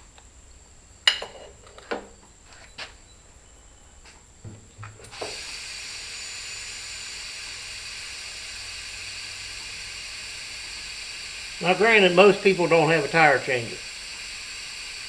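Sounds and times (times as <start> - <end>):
compressed air hissing into tire: 5.0 - 15.0.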